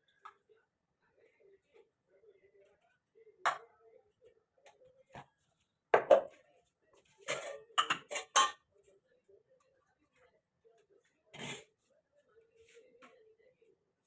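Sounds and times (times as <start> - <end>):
dishes and cutlery clinking: 7.0 - 8.8.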